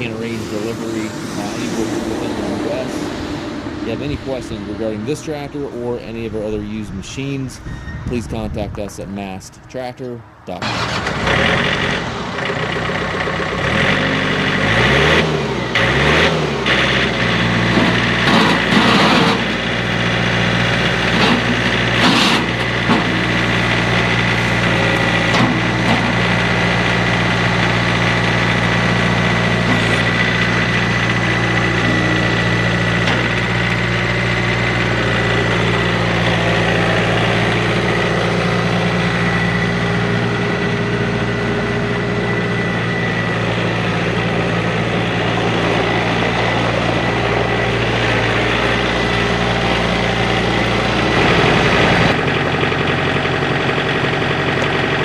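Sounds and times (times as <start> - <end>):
high whine: 0.0 - 9.3, 22.5 - 52.2
tractor diesel engine idling: 10.6 - 14.7, 16.6 - 55.0.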